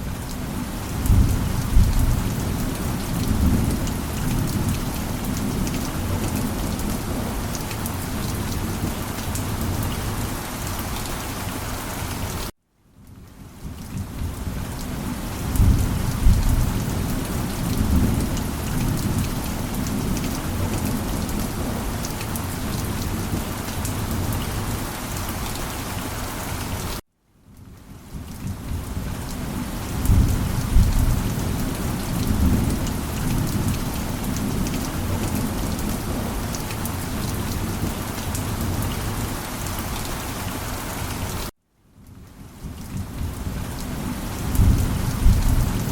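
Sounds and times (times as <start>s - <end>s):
steady rain: 0.0s - 45.9s
thunder rumbling: 0.4s - 7.5s, 15.4s - 24.8s, 29.9s - 39.3s, 44.3s - 45.9s.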